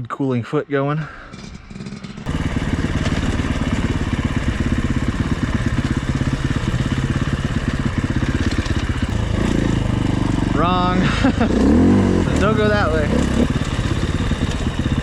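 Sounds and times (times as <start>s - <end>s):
dirt bike engine running: 1.2s - 15.0s.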